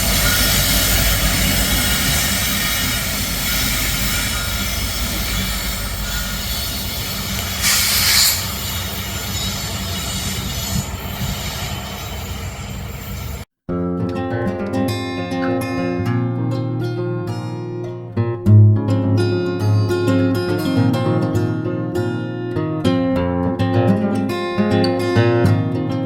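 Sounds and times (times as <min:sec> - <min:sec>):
train cars rumbling: 0:00.0 - 0:13.4
train wheels squealing: 0:00.0 - 0:13.4
brief hiss: 0:07.2 - 0:08.8.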